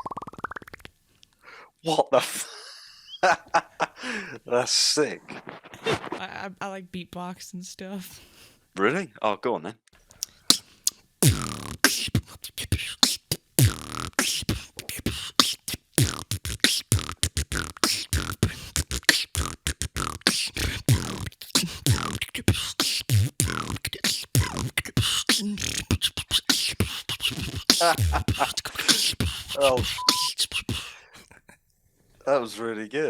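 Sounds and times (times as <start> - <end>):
person beatboxing: 10.2 - 31.0
wavering vocal effects: 11.2 - 31.0.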